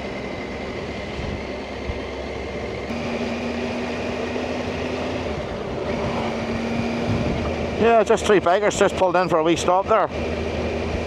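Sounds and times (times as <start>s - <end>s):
motorcycle engine rumbling: 0.0s - 11.0s
wind noise: 4.7s - 7.9s.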